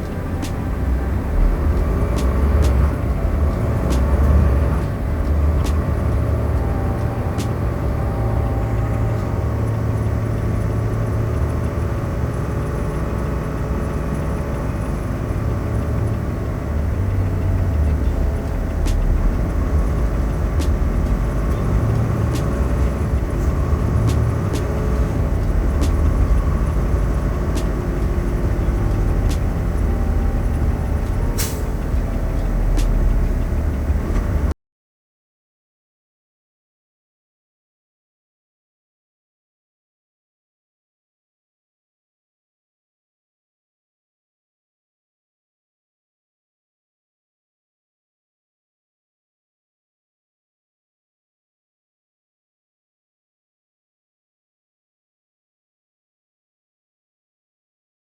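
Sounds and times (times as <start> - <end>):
truck engine and road rumble: 0.0 - 34.6.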